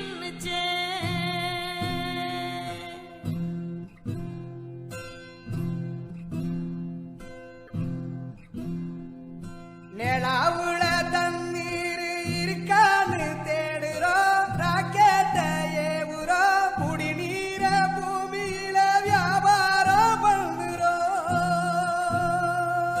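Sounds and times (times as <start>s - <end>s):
person singing: 0.0s - 3.3s, 10.0s - 23.0s
plucked guitar: 0.0s - 23.0s.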